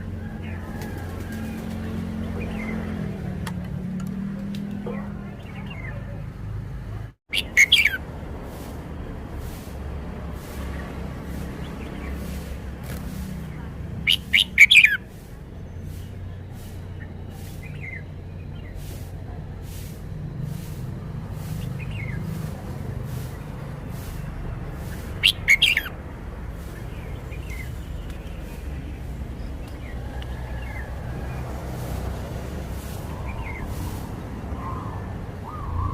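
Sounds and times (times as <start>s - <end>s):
bird singing quick notes: 7.3s - 8.0s, 14.0s - 15.1s, 24.8s - 25.9s, 34.6s - 35.9s
faint bird chirps: 33.1s - 35.9s.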